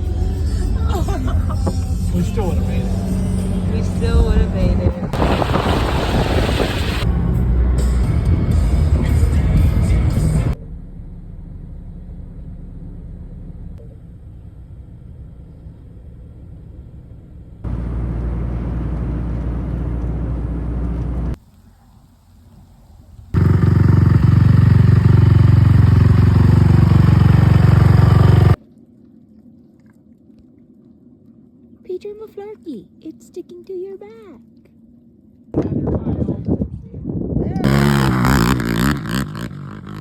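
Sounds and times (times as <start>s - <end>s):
off-road vehicle engine driving: 0.0s - 28.6s, 37.5s - 40.0s.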